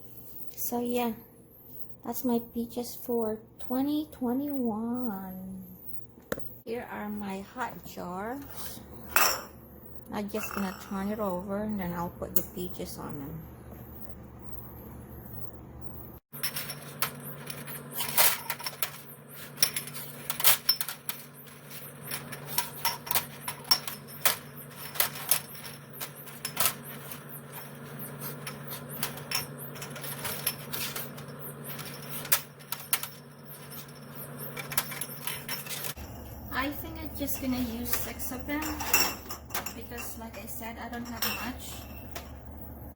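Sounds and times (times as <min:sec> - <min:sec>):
low steady hum: 0:00.0 - 0:42.9
glass jars clinking: 0:09.1 - 0:09.6, 0:10.4 - 0:11.1, 0:16.4 - 0:27.2, 0:38.5 - 0:42.3.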